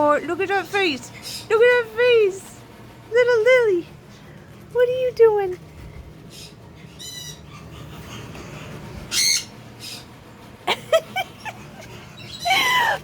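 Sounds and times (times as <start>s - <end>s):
parrots calling: 6.3s - 10.1s, 11.4s - 13.0s.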